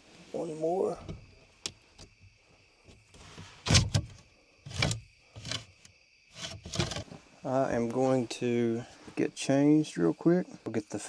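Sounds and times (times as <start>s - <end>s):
window latch knocking and scraping: 3.1s - 7.2s.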